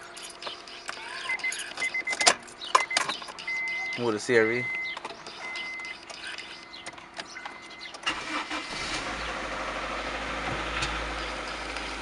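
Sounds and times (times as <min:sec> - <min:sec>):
car engine starting and idling: 0:00.0 - 0:12.0
electronic beeps: 0:00.2 - 0:08.0.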